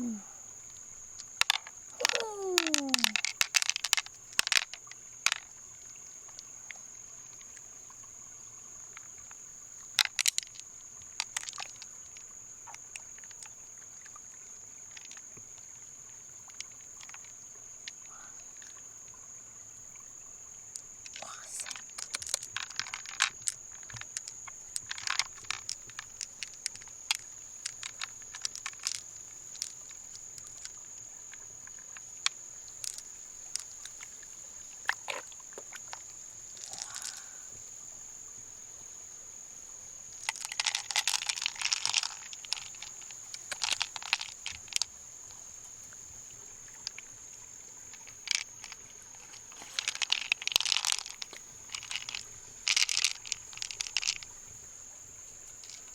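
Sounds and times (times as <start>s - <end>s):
shell clicks and crunching scrapes: 1.3s - 5.4s, 21.1s - 29.8s, 36.6s - 37.3s, 40.2s - 44.9s, 47.9s - 54.3s.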